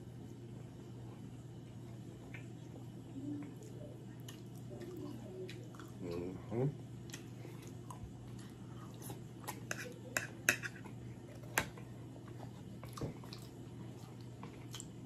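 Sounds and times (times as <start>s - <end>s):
close chewing: 3.4s - 6.4s, 12.2s - 15.0s.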